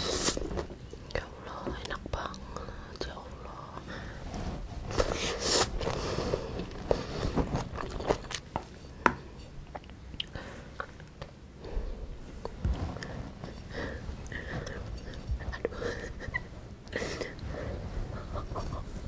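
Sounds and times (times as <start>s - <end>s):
person chewing food: 5.8s - 8.8s, 9.6s - 11.3s.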